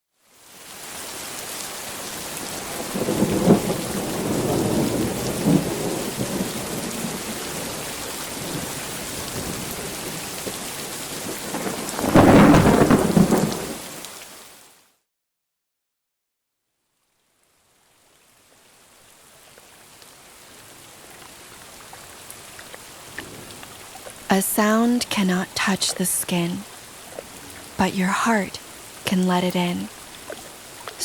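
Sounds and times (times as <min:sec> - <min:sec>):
steady rain: 0:00.1 - 0:14.9, 0:16.7 - 0:31.0
thunder rolling: 0:02.8 - 0:10.6, 0:11.2 - 0:13.8, 0:23.1 - 0:24.6.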